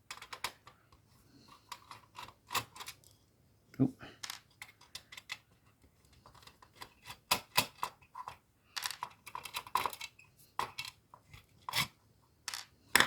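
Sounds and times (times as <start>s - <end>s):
small hard parts clacking: 6.2s - 11.0s.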